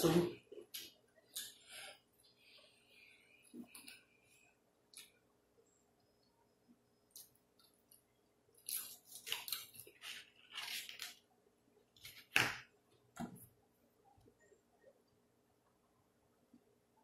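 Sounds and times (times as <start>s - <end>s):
chewing and crunching food: 8.6s - 11.2s.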